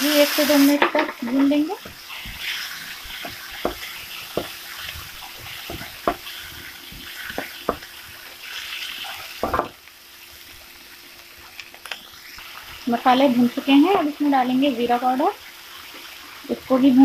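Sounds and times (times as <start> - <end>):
vegetables sizzling in oil: 0.0 - 17.0
spatula scraping a pan: 1.2 - 9.5.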